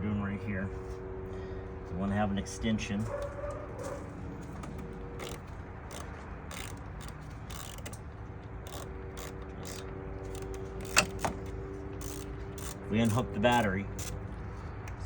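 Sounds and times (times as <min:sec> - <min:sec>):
ratchet wrench clicking: 0:05.2 - 0:08.0, 0:08.6 - 0:14.2.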